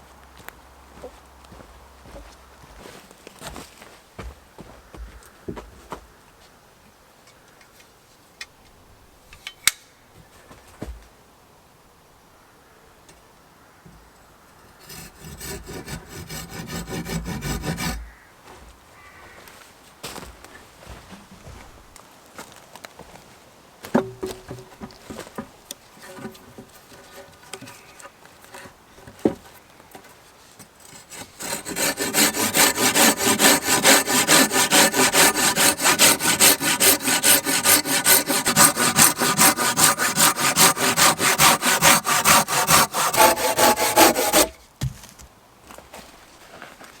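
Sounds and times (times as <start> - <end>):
hand saw cutting wood: 14.8 - 18.1, 30.7 - 44.6.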